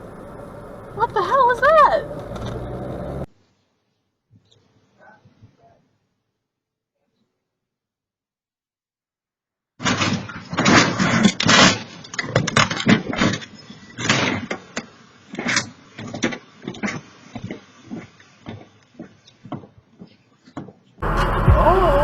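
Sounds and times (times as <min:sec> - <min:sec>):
irregular bangs and thumps: 0:09.8 - 0:20.9.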